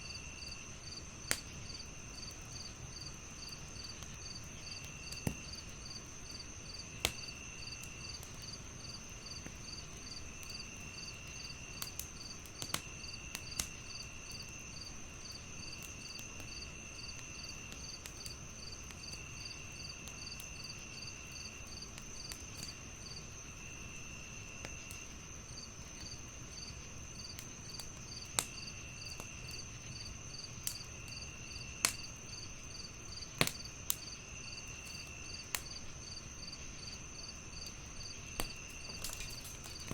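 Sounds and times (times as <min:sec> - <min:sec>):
wood fire crackling: 0:00.1 - 0:39.9
sharp fire pops: 0:01.2 - 0:01.8, 0:03.4 - 0:08.6, 0:11.8 - 0:14.9, 0:27.2 - 0:32.4, 0:33.1 - 0:36.1, 0:37.6 - 0:39.9.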